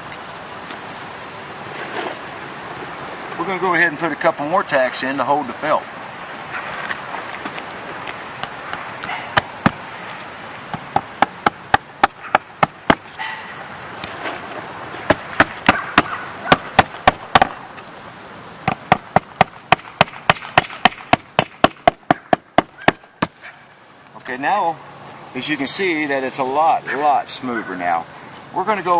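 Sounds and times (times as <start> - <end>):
hammer striking nails: 10.7 - 13.1, 15.1 - 17.6, 18.6 - 23.3.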